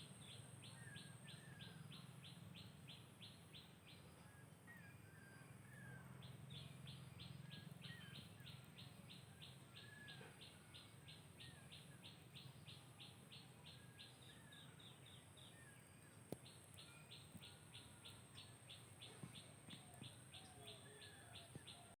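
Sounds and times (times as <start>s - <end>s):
bird chirps: 0.1s - 22.0s.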